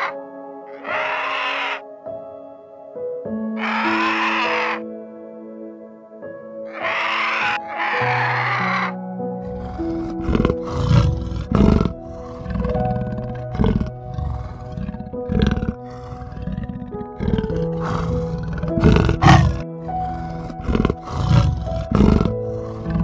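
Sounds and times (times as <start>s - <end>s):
background music: 0.0s - 23.0s
big cat growling: 6.8s - 23.0s.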